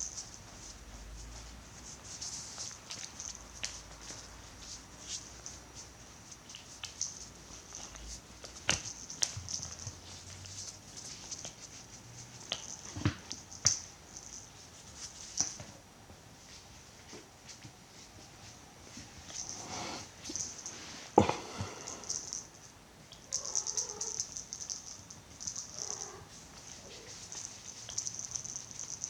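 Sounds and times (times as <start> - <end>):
paws and toy tapping floor: 2.4 - 15.8, 23.1 - 29.0
faint high hiss: 16.4 - 29.0.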